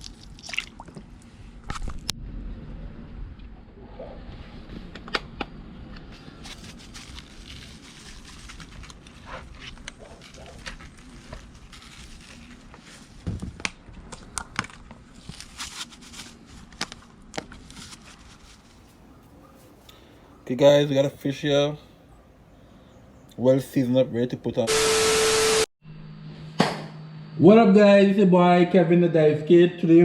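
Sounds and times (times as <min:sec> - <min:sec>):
crinkling of wrapping: 0:06.2 - 0:20.0.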